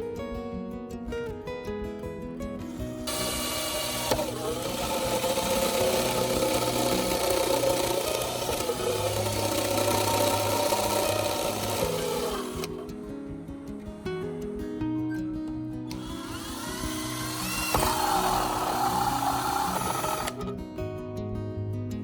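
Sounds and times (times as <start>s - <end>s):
background music: 0.0s - 22.0s
power tool motor running: 3.0s - 13.0s, 15.9s - 20.6s.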